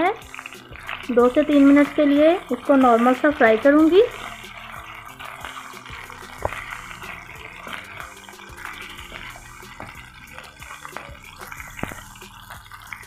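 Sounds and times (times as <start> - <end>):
beef sizzling in a frying pan: 0.0 - 13.0
soft background music: 0.0 - 13.0
spatula scraping a pan: 0.4 - 13.0.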